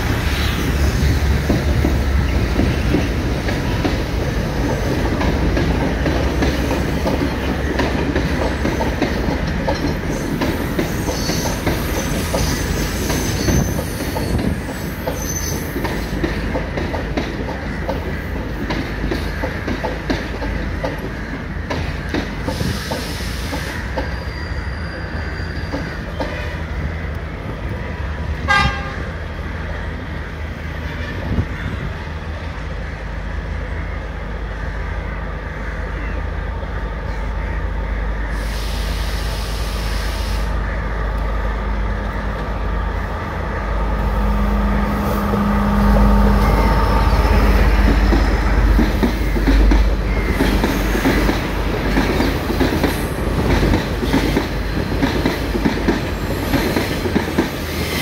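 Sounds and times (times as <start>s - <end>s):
train wheels rumbling: 0.0s - 58.0s
high train toot: 10.0s - 16.3s, 22.4s - 27.5s, 28.4s - 29.4s, 35.9s - 58.0s
train horn tones: 28.5s - 29.3s, 43.8s - 51.0s
diesel engine drone: 40.5s - 49.0s.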